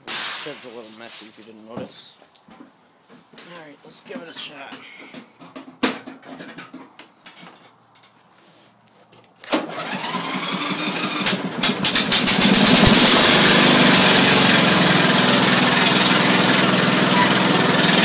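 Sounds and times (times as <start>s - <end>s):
lawn tractor engine running: 9.6s - 18.0s
starter motor cranking: 9.6s - 18.0s.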